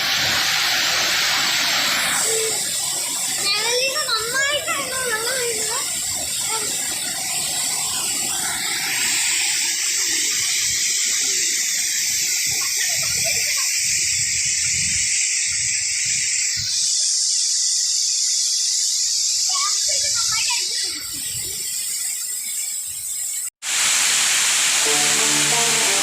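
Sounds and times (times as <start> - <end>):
waterfall rushing: 0.0 - 13.6, 23.6 - 26.0.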